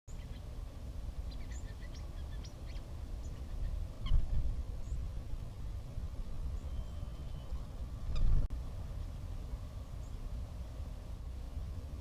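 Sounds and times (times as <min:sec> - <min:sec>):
small birds chirping: 0:00.1 - 0:00.6, 0:01.2 - 0:08.4, 0:09.8 - 0:10.3
steady low rumble: 0:00.1 - 0:12.0.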